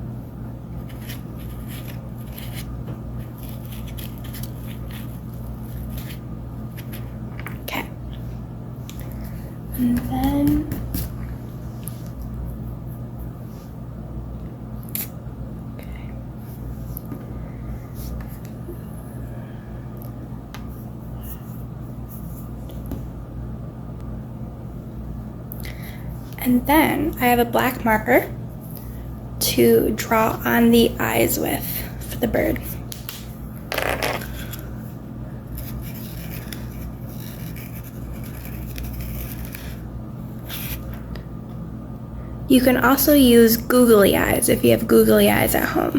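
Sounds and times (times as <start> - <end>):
low electrical hum: 0.0 - 45.9
marker scratching on paper plate: 35.6 - 39.8.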